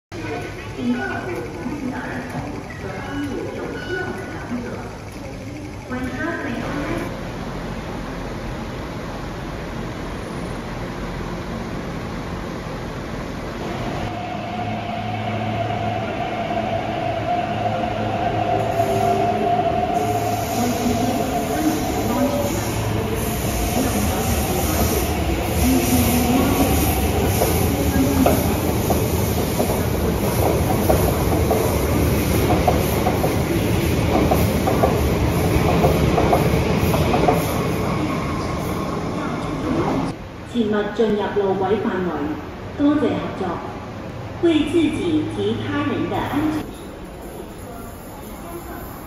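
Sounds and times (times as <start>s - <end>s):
electric train whine: 4.6s - 40.2s.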